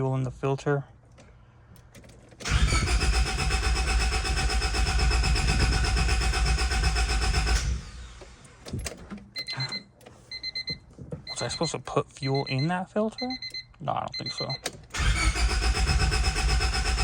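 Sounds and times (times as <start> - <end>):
engine cranking without starting: 1.9 - 9.1, 14.8 - 17.0.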